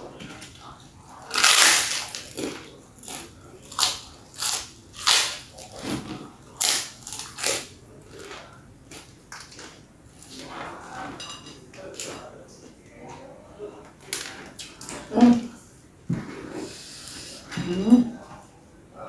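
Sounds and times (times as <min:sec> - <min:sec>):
crunchy chewing: 0:00.4 - 0:11.0.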